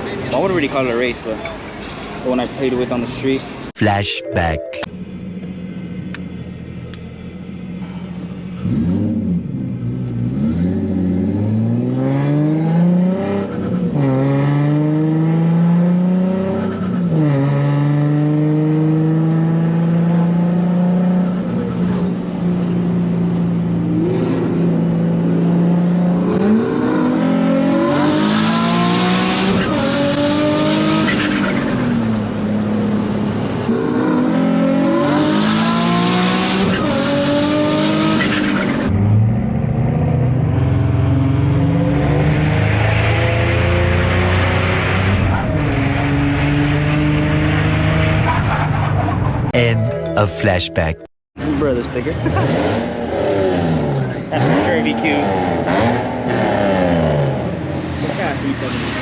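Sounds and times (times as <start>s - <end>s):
car engine accelerating hard: 52.0s - 59.0s.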